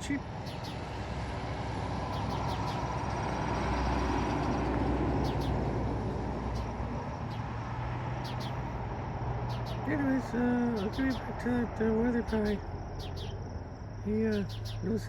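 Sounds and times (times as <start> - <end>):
high bird chirps: 0.0 - 1.0, 2.1 - 2.9, 5.2 - 5.6, 6.5 - 15.0
vehicle passing by: 0.0 - 15.0.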